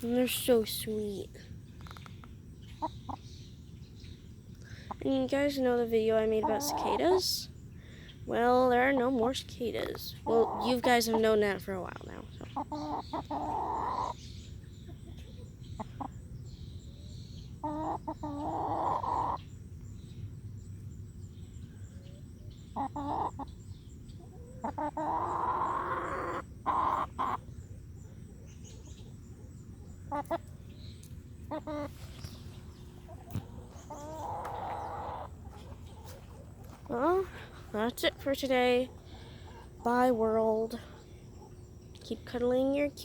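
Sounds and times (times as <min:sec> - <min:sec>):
hens clucking and calling: 0:06.3 - 0:07.4, 0:10.2 - 0:14.2, 0:17.5 - 0:19.5, 0:22.7 - 0:30.6, 0:31.4 - 0:37.7.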